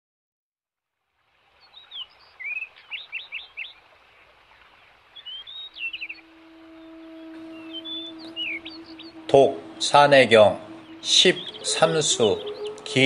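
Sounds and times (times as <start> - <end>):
birdsong chirps: 1.5 - 13.0
low steady tone: 6.0 - 13.0.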